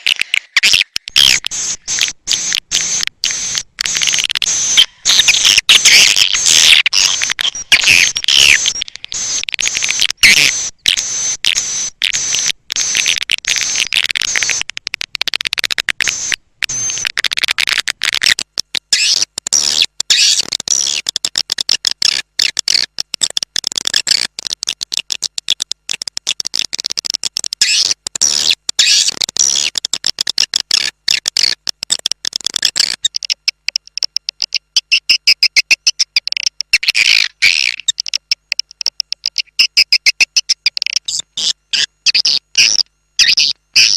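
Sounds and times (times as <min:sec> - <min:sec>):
swiftlets twittering and chirping: 0:32.3 - 0:43.9.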